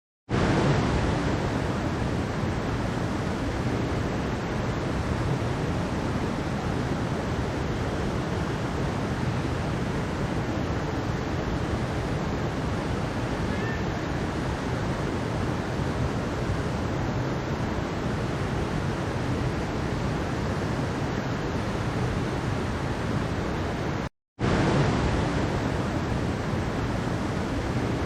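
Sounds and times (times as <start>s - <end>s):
water rushing over rocks: 0.3s - 28.0s.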